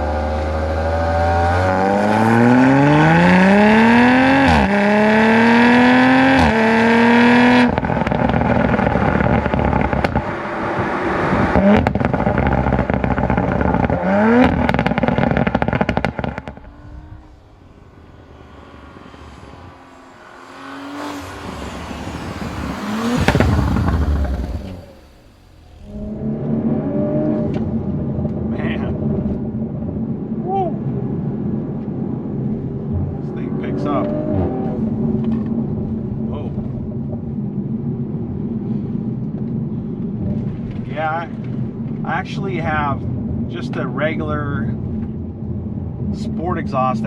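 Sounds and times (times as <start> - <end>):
car engine accelerating hard: 0.0 - 47.0
exhaust crackles and blips: 0.0 - 47.0.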